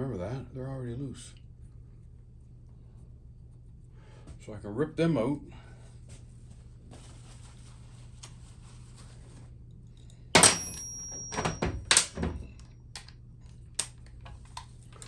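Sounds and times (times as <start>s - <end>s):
metal tools clanking: 10.4s - 12.6s.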